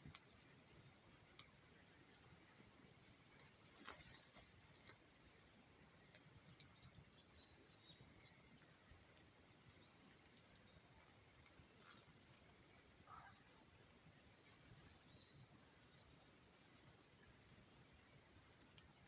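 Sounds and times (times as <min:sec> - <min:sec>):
small birds chirping: 0:00.0 - 0:19.0
sharp clicks: 0:10.1 - 0:10.7, 0:14.9 - 0:15.4.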